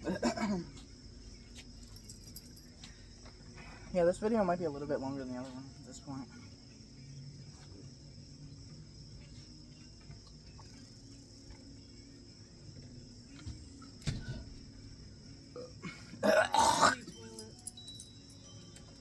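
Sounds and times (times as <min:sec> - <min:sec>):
low room hum: 0:00.0 - 0:19.0
person belching: 0:15.6 - 0:17.1.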